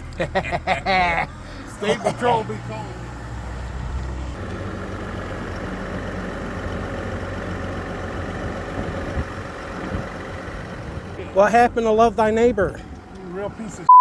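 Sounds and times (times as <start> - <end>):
truck engine idling: 0.0 - 13.9.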